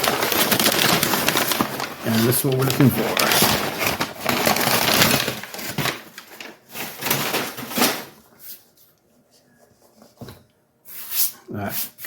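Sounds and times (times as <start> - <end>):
packaging crackling rustle: 0.0 - 8.2.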